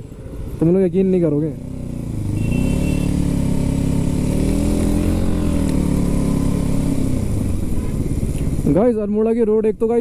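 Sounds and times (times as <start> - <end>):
motorcycle engine running: 1.3 - 8.9.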